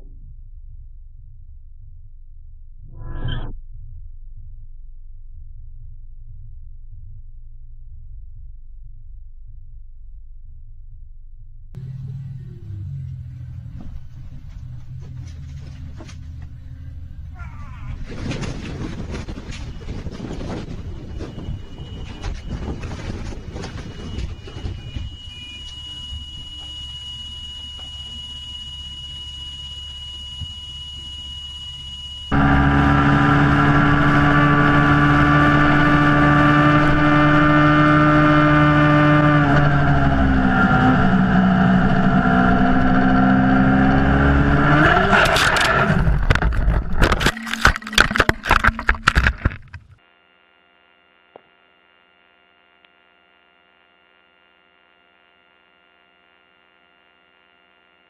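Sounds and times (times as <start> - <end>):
vehicle engine noise: 11.7 - 25.8, 32.3 - 50.0.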